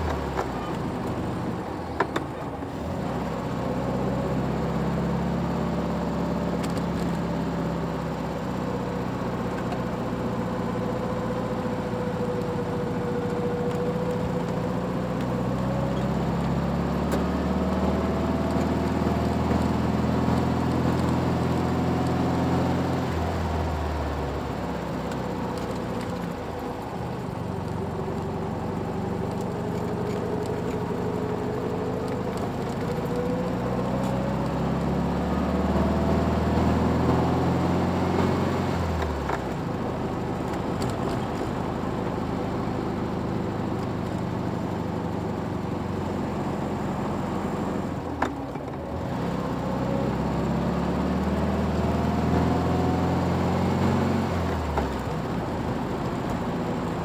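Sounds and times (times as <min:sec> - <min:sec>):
car engine idling: 0:23.5 - 0:33.9.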